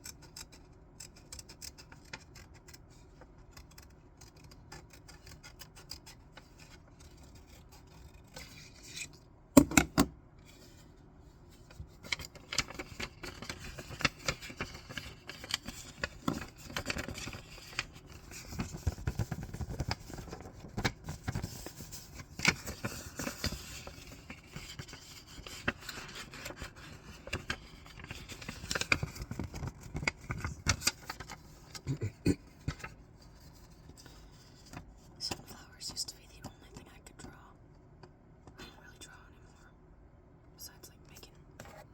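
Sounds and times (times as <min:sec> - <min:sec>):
scissors cutting paper: 0:00.0 - 0:09.1, 0:12.0 - 0:31.8
paper crinkling and rustling: 0:10.4 - 0:35.0.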